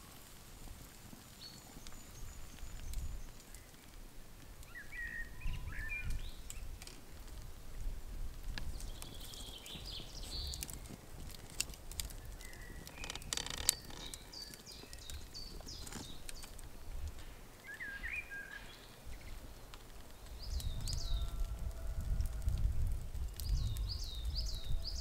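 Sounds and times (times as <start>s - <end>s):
birds chirping: 4.6s - 6.8s, 8.6s - 16.8s, 17.5s - 21.5s.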